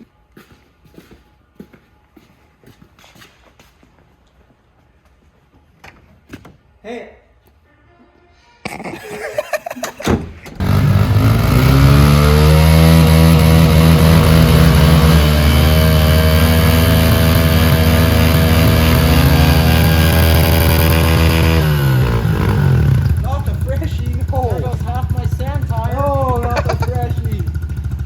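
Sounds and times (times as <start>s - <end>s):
pit bike engine revving high: 10.6s - 28.0s.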